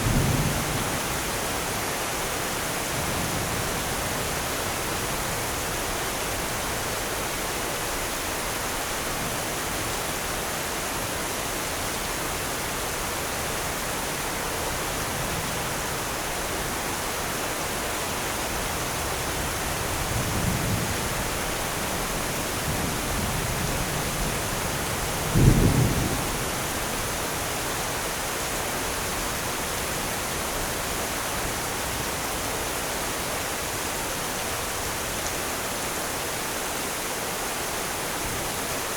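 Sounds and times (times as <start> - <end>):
low thunder rumble: 0.0 - 1.3, 22.0 - 26.8
steady rain falling: 0.0 - 38.9
sharp thunderclap: 25.2 - 26.4.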